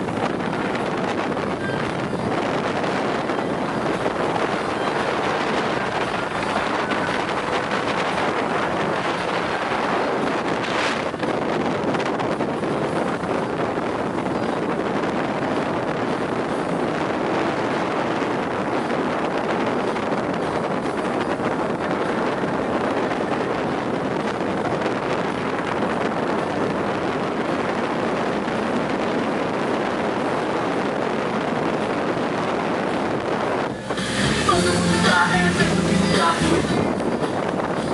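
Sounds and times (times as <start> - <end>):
water noise from motorboat: 0.0 - 37.9
wind on microphone: 0.0 - 37.9
music: 33.7 - 37.9.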